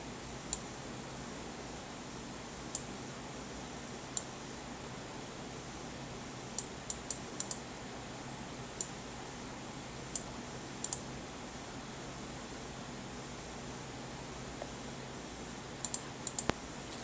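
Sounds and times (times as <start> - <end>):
faint low hum: 0.0 - 17.0
light sharp clicks: 15.8 - 16.6.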